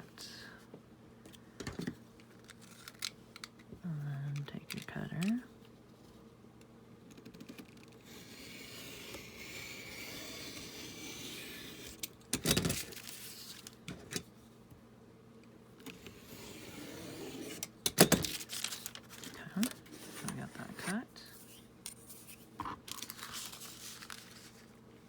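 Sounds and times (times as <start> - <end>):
cutter blade scraping through paper: 8.1 - 12.1, 16.0 - 17.7.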